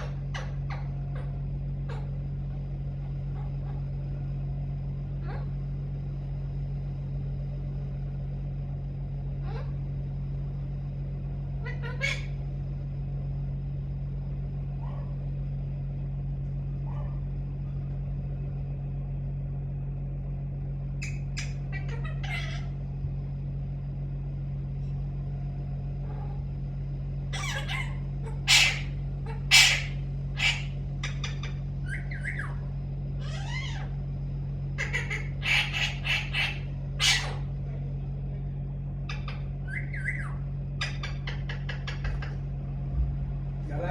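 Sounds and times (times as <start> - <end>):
parrot squawking: 0.0 - 2.2, 3.1 - 3.9, 5.2 - 5.6, 9.4 - 9.8, 11.6 - 12.4, 21.0 - 22.8, 27.3 - 34.0, 34.8 - 37.5, 39.1 - 42.4
steady low hum: 0.0 - 43.9.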